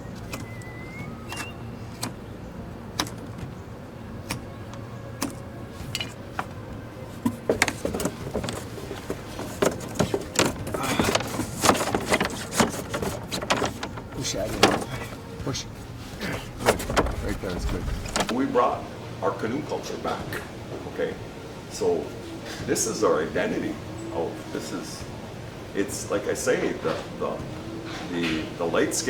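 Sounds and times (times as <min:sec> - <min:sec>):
canoe knocks clicks and scrapes: 0:05.2 - 0:18.4.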